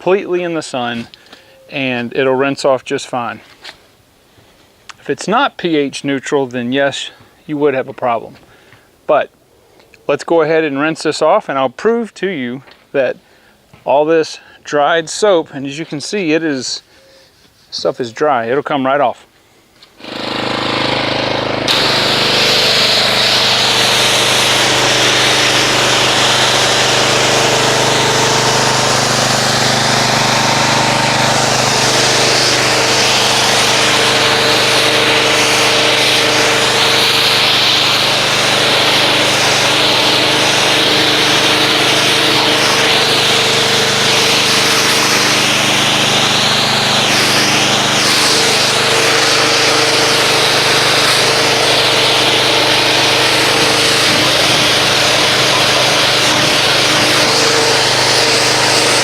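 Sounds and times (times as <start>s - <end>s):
pressure washer spraying: 20.0s - 59.0s.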